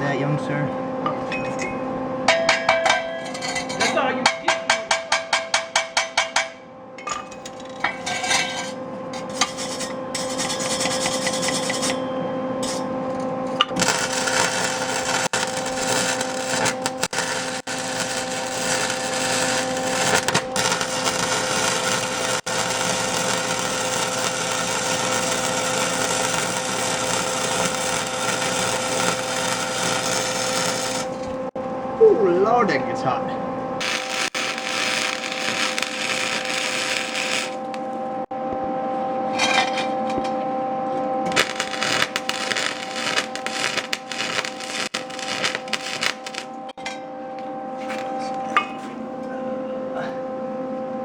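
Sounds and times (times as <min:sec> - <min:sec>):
welder crackling: 0:07.3 - 0:12.0, 0:12.6 - 0:31.6, 0:33.8 - 0:38.3, 0:41.2 - 0:46.7, 0:47.4 - 0:48.6.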